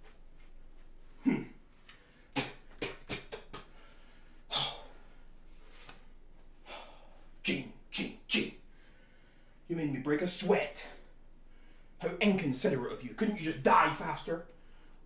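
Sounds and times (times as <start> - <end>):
man gasping: 1.2 - 2.6, 3.6 - 5.1, 6.7 - 7.3
man breathing hard: 3.6 - 5.2, 6.6 - 7.4, 8.7 - 9.7.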